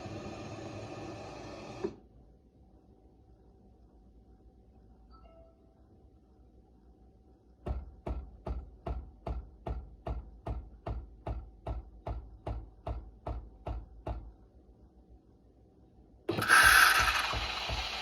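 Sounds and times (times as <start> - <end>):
espresso machine knocking: 16.3 - 18.0.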